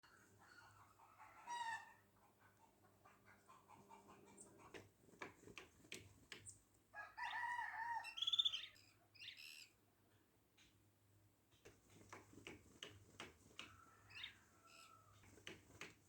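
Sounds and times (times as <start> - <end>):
bird call with rapid trill: 8.1 - 9.7
bird beak tapping: 11.6 - 13.8, 15.2 - 16.0.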